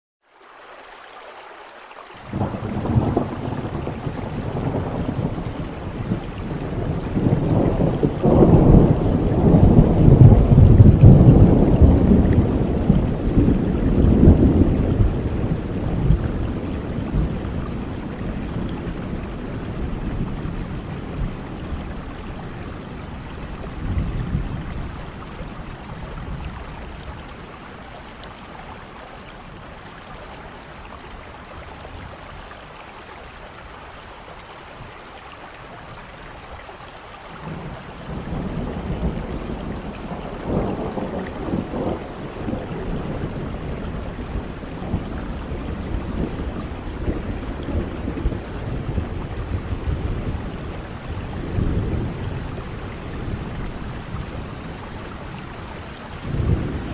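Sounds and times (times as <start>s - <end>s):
steady rain: 0.2s - 56.9s
thunder rumbling: 2.3s - 28.1s, 37.4s - 56.9s.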